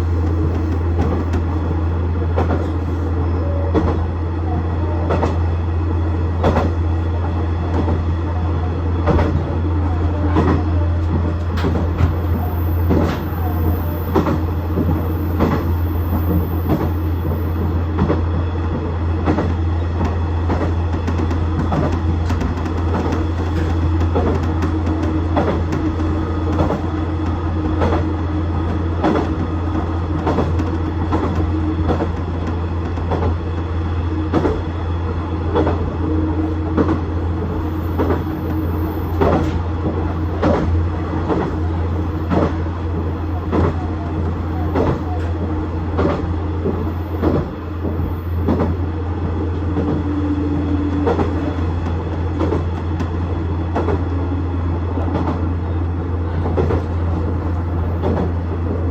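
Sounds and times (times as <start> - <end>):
wheels clacking on track: 9.0 - 33.7, 35.4 - 36.0, 36.6 - 54.2, 54.9 - 58.9.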